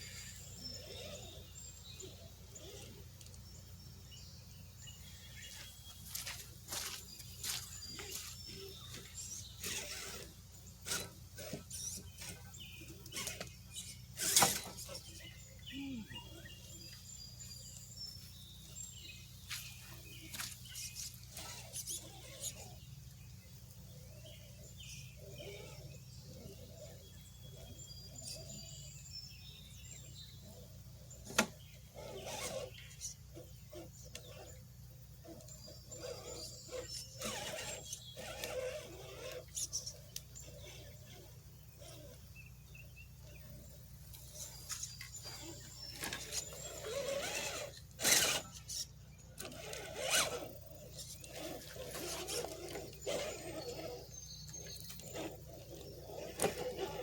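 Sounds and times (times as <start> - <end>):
birds chirping: 0.0 - 57.0
steady low hum: 0.0 - 57.0
knocks and scrapes: 13.1 - 15.1.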